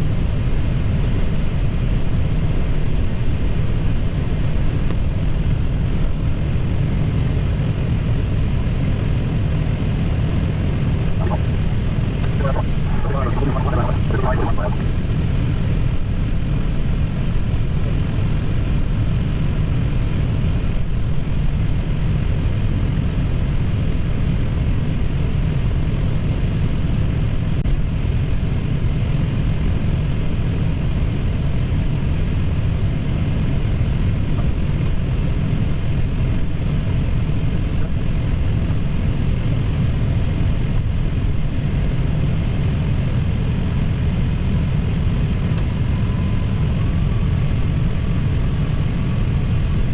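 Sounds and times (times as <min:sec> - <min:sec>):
ventilation hiss: 0:11.2 - 0:11.5, 0:12.2 - 0:15.0
jet engines idling: 0:11.2 - 0:15.1.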